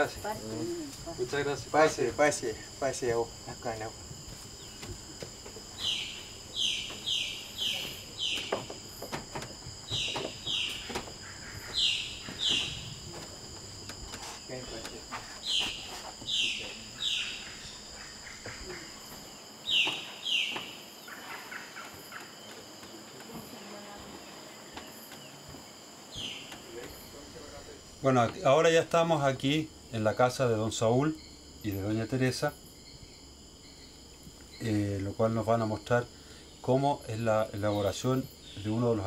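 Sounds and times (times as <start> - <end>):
high insect drone: 0.0 - 39.0
footsteps on wooden stairs: 4.0 - 17.0, 18.4 - 27.0.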